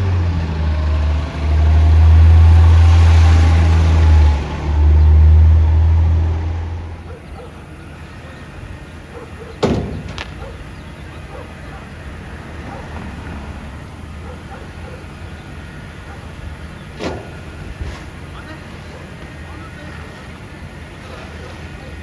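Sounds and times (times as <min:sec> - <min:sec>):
garbage truck engine drone: 0:00.0 - 0:22.0
sharp knock: 0:09.6 - 0:10.4.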